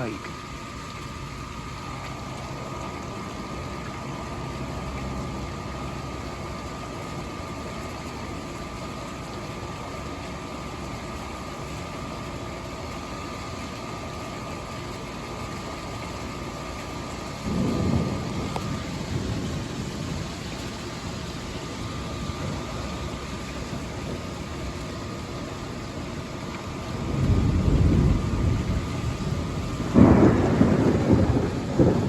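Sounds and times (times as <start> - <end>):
rain: 0.0 - 32.0
wind: 0.0 - 32.0.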